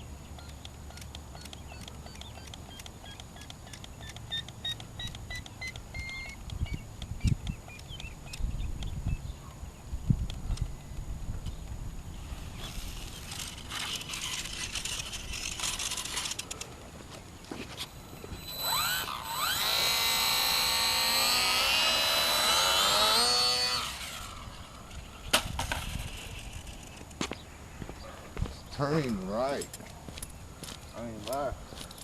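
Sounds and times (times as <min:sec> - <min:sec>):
model airplane motor whining: 0:12.2 - 0:16.7, 0:18.0 - 0:25.1.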